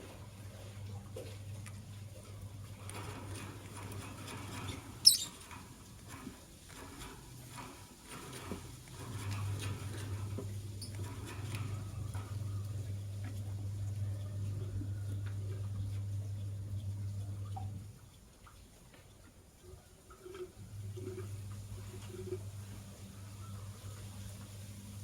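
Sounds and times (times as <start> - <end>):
birds scratching and pecking: 0.0 - 25.0
bird chirp: 5.0 - 5.4.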